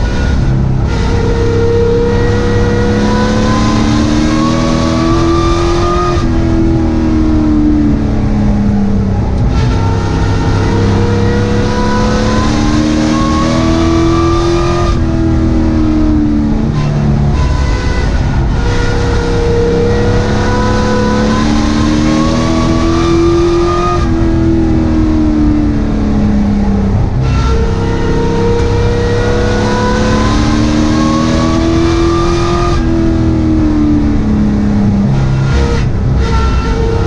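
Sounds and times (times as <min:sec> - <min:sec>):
truck engine revving: 0:00.0 - 0:37.0.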